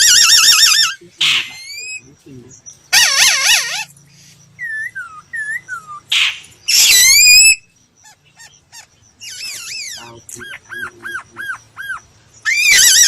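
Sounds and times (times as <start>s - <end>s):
bird singing whistled notes: 3.9s - 13.0s.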